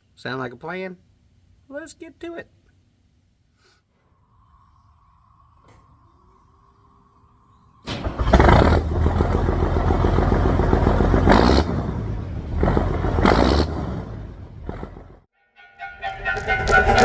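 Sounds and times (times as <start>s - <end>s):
engine running loudly: 7.9s - 15.2s.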